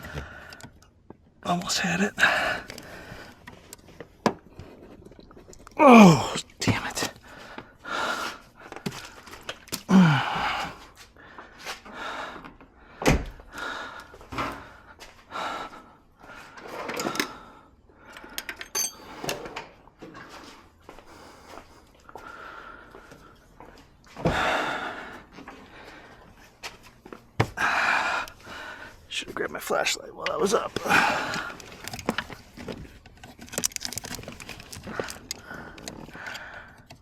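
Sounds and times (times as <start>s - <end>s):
man breathing heavily: 2.2s - 3.4s, 9.9s - 16.6s, 21.0s - 26.6s, 27.4s - 29.1s, 30.8s - 31.8s, 34.7s - 37.0s
man grunting: 5.8s - 6.4s
plastic trim clicks and rustles: 31.6s - 37.0s.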